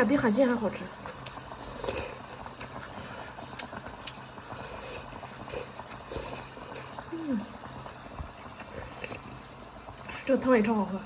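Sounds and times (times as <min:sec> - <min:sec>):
steady low hum: 0:00.0 - 0:11.0
chewing: 0:03.5 - 0:07.1, 0:07.8 - 0:09.3.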